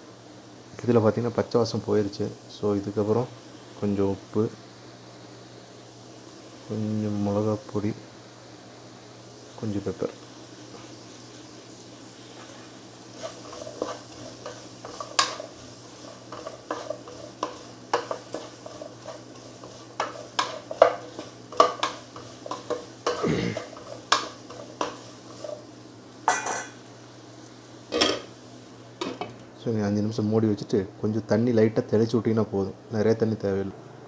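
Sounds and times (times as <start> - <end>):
spoon scraping and clinking pan: 13.2 - 25.6, 26.3 - 26.8.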